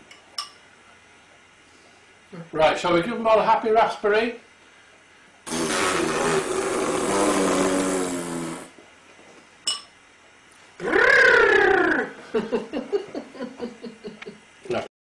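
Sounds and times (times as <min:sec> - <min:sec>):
person blowing a raspberry: 0:05.5 - 0:08.8, 0:10.8 - 0:12.2.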